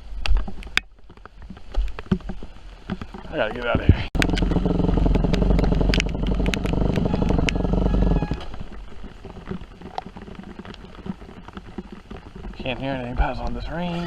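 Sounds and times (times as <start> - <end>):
sharp clicks: 3.6 - 12.3
dirt bike engine revving: 4.2 - 8.6.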